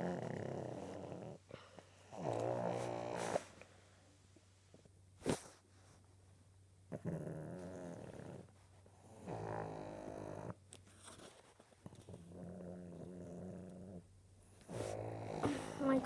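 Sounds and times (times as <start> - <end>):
dog snoring: 0.0 - 3.7, 6.9 - 10.6, 11.9 - 16.0.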